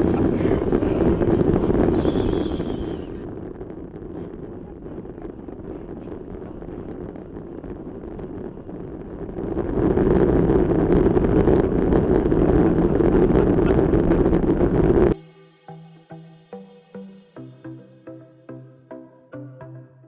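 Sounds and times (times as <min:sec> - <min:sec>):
electronic music: 0:00.0 - 0:03.4, 0:14.7 - 0:20.0
wind noise on microphone: 0:00.0 - 0:15.2.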